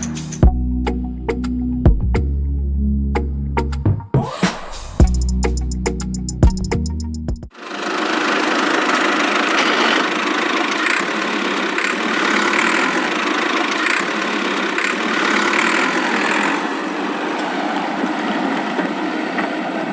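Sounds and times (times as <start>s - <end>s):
small motor running: 7.5s - 19.0s.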